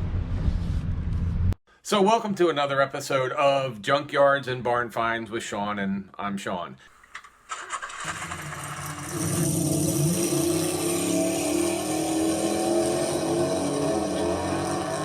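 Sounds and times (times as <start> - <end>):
road noise: 7.0 - 15.0
vehicle engine running: 7.8 - 15.0.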